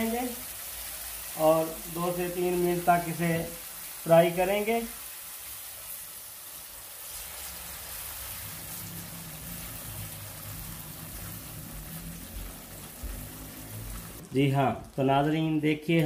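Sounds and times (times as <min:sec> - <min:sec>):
sauce sizzling in frying pan: 0:00.0 - 0:15.6
spatula stirring: 0:07.0 - 0:14.2.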